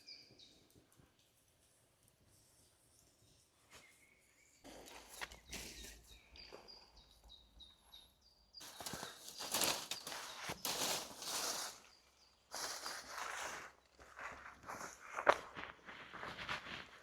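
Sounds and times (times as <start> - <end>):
faint high bird chirps: 0.0 - 0.7, 2.5 - 14.0
footsteps crunching on forest floor: 4.7 - 6.8, 8.6 - 17.0.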